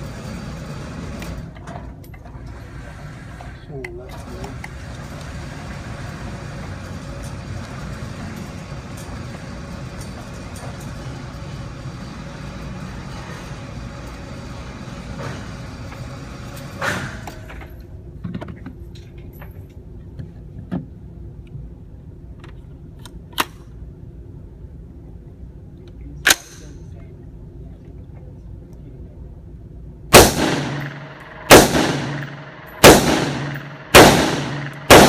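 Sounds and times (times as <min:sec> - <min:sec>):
steady rumbling noise: 0:02.5 - 0:35.0
sharp gunfire cracks: 0:30.1 - 0:35.0.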